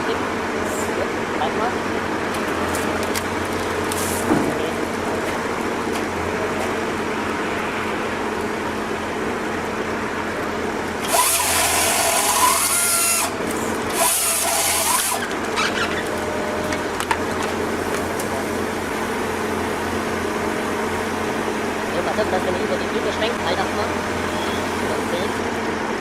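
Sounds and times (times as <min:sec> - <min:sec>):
machinery humming: 0:00.0 - 0:26.0
harsh high-pitched cutting noise: 0:11.0 - 0:15.3.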